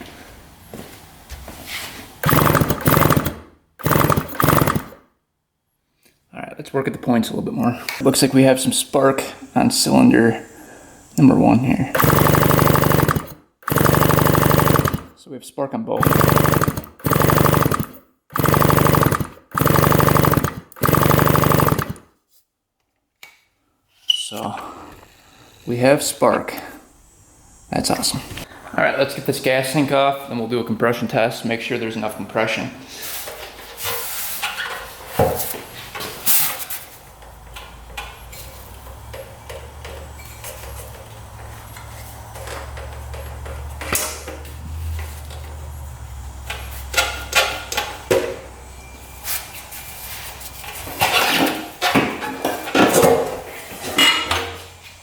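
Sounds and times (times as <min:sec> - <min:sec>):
engine electric starter cranking: 0:02.2 - 0:05.0, 0:12.0 - 0:15.1, 0:16.0 - 0:22.1.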